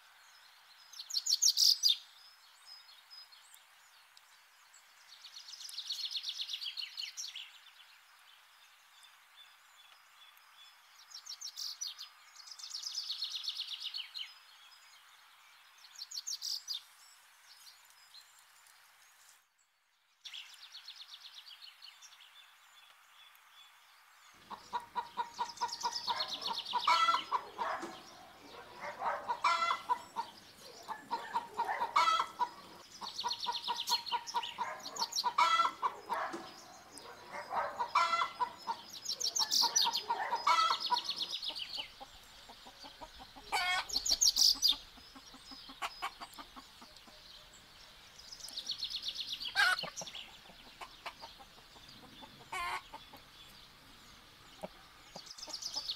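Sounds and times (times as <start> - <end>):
chickens clucking: 24.4 - 47.2, 49.4 - 53.4, 54.4 - 55.9.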